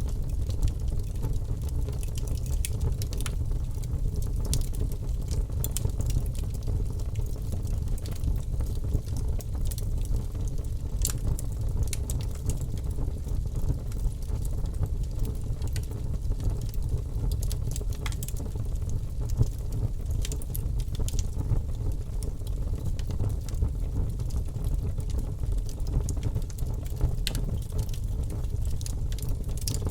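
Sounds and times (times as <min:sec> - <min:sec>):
fire crackling and popping: 0:00.0 - 0:29.9
low rumble of flames: 0:00.0 - 0:29.9.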